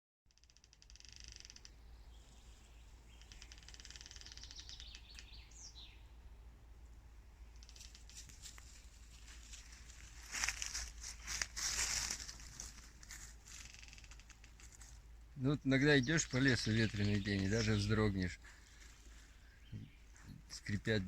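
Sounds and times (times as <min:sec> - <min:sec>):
bird trills: 0:00.4 - 0:06.1, 0:15.7 - 0:20.6
low steady rumble: 0:04.4 - 0:21.0.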